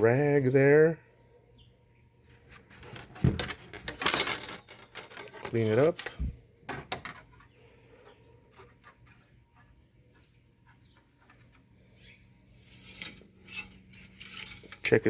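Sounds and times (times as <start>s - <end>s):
rag rubbing: 12.5s - 15.0s.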